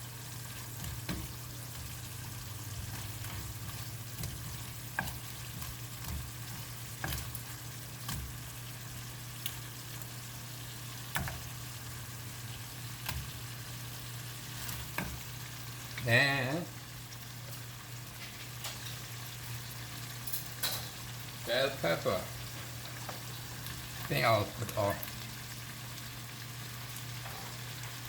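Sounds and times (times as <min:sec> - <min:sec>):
curry sauce sizzling in a pan: 0:00.0 - 0:28.0.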